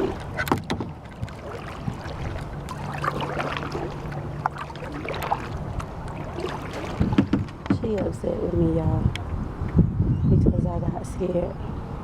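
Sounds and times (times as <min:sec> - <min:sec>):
paddle splashes: 0:00.0 - 0:08.1
water lapping around kayak: 0:00.0 - 0:09.7.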